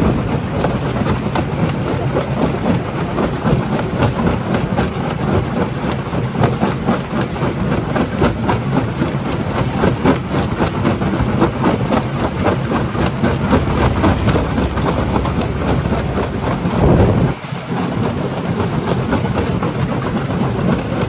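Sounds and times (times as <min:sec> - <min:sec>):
jaw crusher rumbling: 0:12.0 - 0:17.4.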